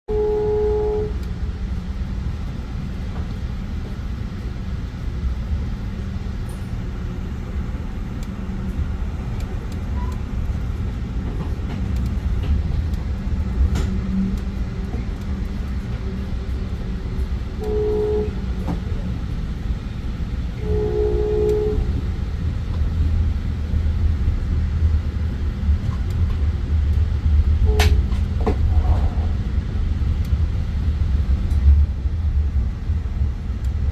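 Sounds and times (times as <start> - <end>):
train horn blasts: 0.1 - 1.3, 17.6 - 18.6, 20.5 - 22.0, 27.6 - 28.0
train rumbling: 0.1 - 33.9.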